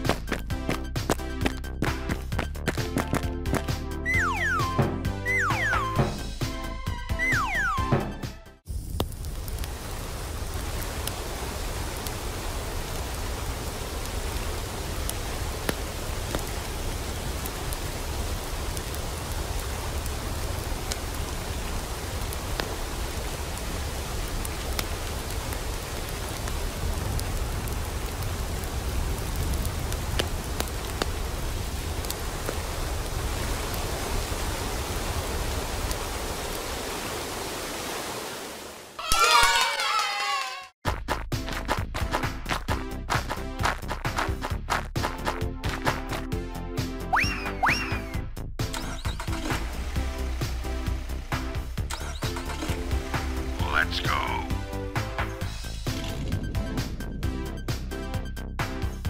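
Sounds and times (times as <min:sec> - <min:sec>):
water hissing: 0:48.8 - 0:53.9.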